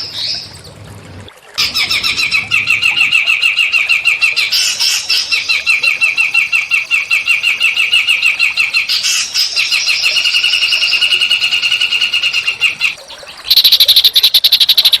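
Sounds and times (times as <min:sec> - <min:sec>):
songbird chirping and trilling: 0:01.6 - 0:15.0
harsh rapid chattering rattle: 0:13.5 - 0:15.0.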